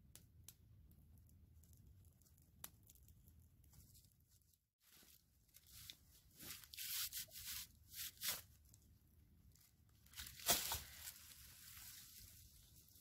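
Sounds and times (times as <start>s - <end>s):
evergreen boughs rustling: 10.1s - 13.0s.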